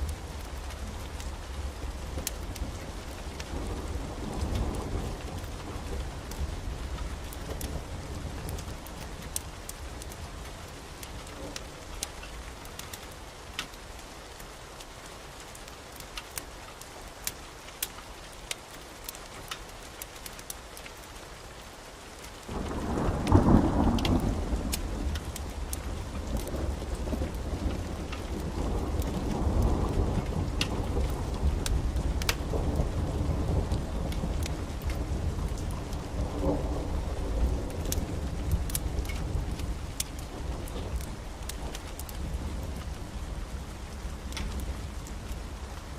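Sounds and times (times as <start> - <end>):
thunder clap and rumble: 0.0 - 12.8, 22.5 - 45.9
steady rain: 0.0 - 45.9
sharp crackles: 22.2 - 45.9.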